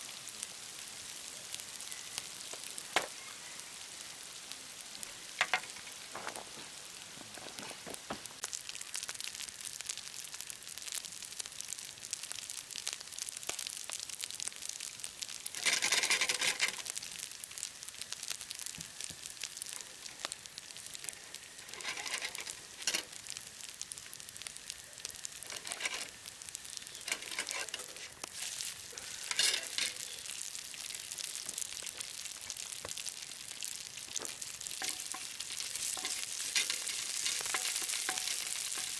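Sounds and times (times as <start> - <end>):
food sizzling in a hot pan: 0.0 - 38.9.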